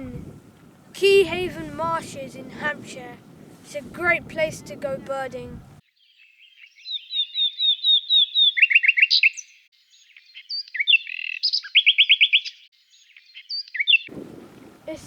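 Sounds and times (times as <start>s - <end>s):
bird singing: 5.6s - 14.8s.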